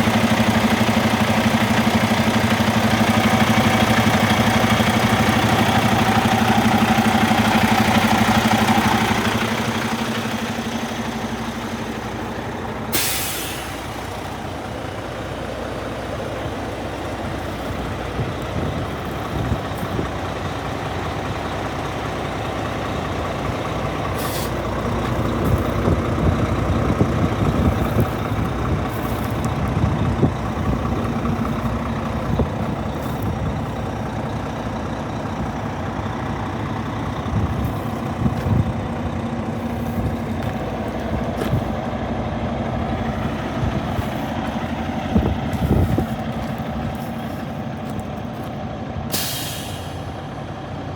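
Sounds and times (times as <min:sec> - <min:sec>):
truck diesel engine running: 0:00.0 - 0:50.9
air hiss: 0:12.9 - 0:13.9, 0:49.1 - 0:50.1.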